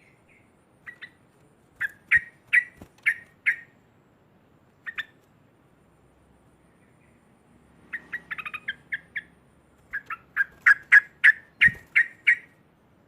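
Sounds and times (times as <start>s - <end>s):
bulbul chattering: 1.8s - 3.8s, 4.8s - 5.2s, 7.9s - 12.6s.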